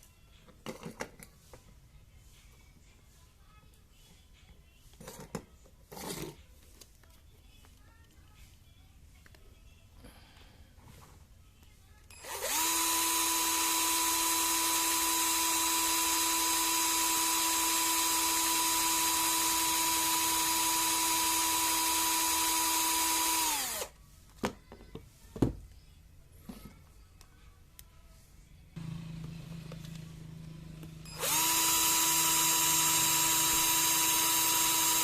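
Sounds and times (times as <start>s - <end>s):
electric drill whining: 12.1s - 23.9s, 28.8s - 35.0s.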